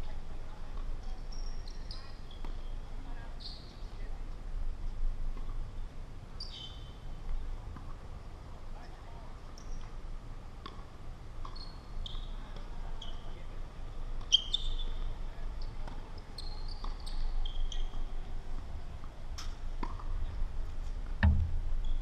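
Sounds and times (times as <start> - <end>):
sneakers squeaking on court: 11.4 - 13.4, 14.2 - 18.1
tennis ball strikes and bounces: 19.4 - 20.1, 21.2 - 21.9.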